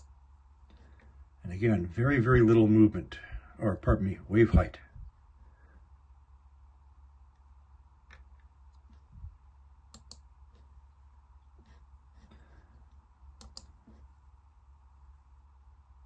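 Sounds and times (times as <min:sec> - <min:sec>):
steady low hum: 0:00.0 - 0:16.0
computer mouse or keyboard clicks: 0:09.9 - 0:10.6, 0:13.4 - 0:14.0.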